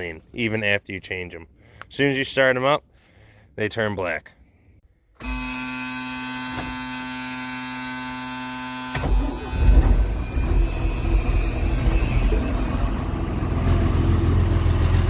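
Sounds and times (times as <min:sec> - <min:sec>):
electric starter whining: 0:05.2 - 0:15.0
engine running rough: 0:09.0 - 0:15.0.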